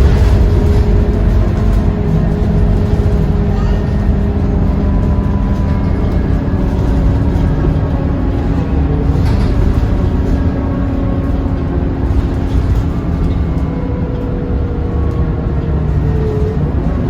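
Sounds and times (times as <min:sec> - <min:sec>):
bus engine drone: 0:00.0 - 0:17.0
road rumble: 0:00.0 - 0:17.0.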